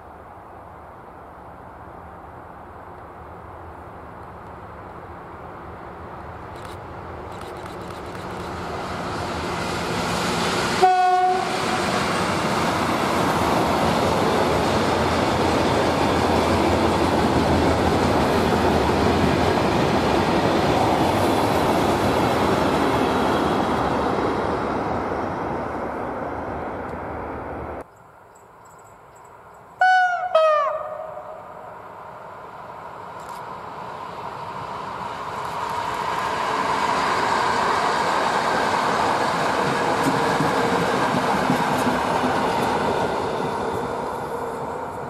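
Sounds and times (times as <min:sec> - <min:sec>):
train wagons rolling past: 0:03.7 - 0:27.9, 0:31.8 - 0:45.0
locomotive horn blast: 0:10.8 - 0:11.7, 0:29.8 - 0:31.6.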